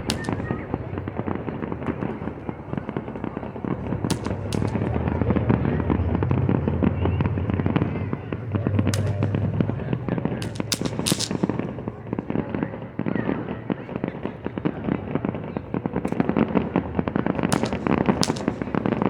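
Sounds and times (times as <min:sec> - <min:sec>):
sharp cracks: 0:00.0 - 0:12.4, 0:17.3 - 0:19.0
fireworks booming: 0:00.0 - 0:19.0
fireworks crackling: 0:00.0 - 0:19.0.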